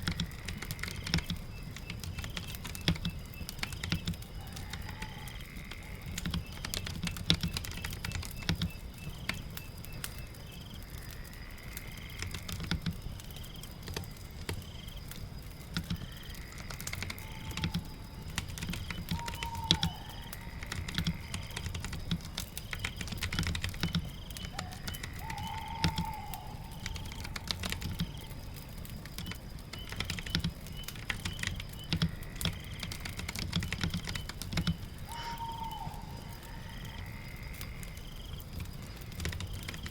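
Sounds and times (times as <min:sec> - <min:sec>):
rain pattering: 0:00.0 - 0:39.9
keyboard typing: 0:16.6 - 0:28.3, 0:29.0 - 0:34.9.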